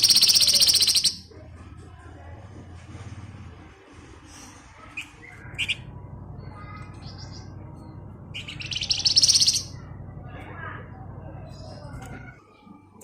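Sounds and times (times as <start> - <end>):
bird chirping and trilling: 0.0 - 1.3, 4.9 - 12.0
steady low hum: 0.0 - 13.0.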